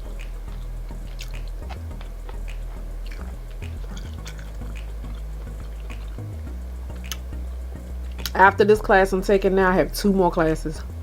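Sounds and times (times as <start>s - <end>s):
close chewing: 0.0s - 8.4s
wet mouth clicks: 0.0s - 8.4s
low background hum: 0.0s - 11.0s.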